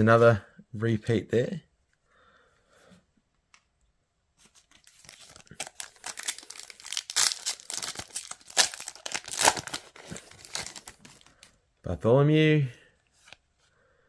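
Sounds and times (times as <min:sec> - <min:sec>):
plastic wrapper tearing and crinkling: 0:04.6 - 0:11.4.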